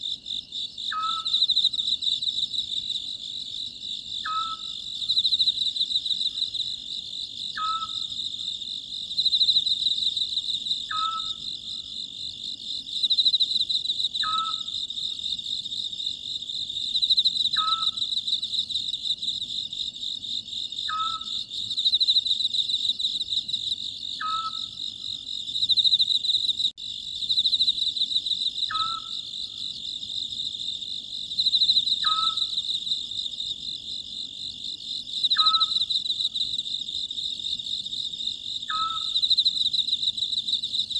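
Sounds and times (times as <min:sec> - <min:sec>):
insects chirring: 0:00.0 - 0:40.9
owl calling: 0:00.9 - 0:01.4, 0:04.2 - 0:04.8, 0:07.6 - 0:08.0, 0:10.9 - 0:11.4, 0:14.2 - 0:14.7, 0:17.6 - 0:18.0, 0:20.9 - 0:21.4, 0:24.2 - 0:24.7, 0:28.7 - 0:29.2, 0:32.0 - 0:32.5, 0:35.3 - 0:35.8, 0:38.7 - 0:39.2.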